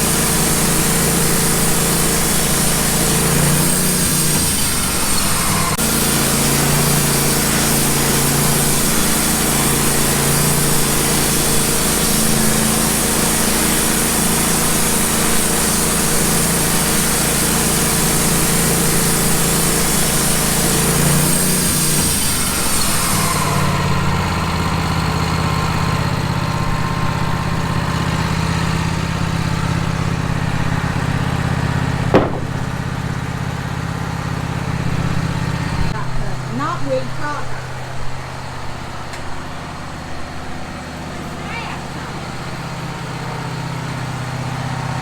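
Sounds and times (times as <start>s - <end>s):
bandsaw mill cutting log: 0.0s - 45.0s
engine running under load: 0.0s - 45.0s
sharp knock: 32.1s - 32.8s.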